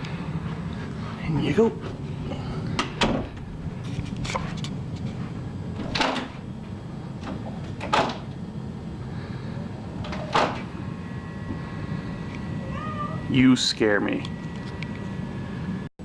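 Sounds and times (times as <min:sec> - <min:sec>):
door rattling in its frame: 0:05.8 - 0:06.4, 0:07.2 - 0:08.3.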